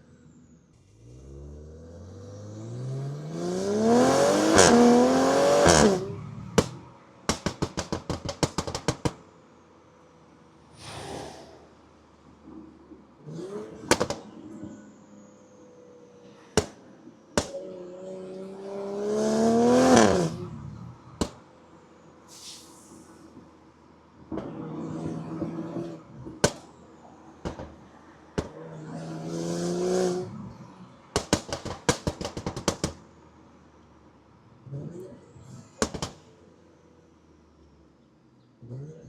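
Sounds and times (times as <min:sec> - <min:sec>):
car exhaust revving: 0:00.8 - 0:09.2, 0:17.4 - 0:21.4
sharp exhaust pops: 0:04.4 - 0:09.3, 0:13.7 - 0:14.4, 0:16.5 - 0:17.6, 0:21.2 - 0:21.5, 0:26.2 - 0:26.8, 0:27.4 - 0:28.6, 0:31.1 - 0:33.2, 0:35.8 - 0:36.4.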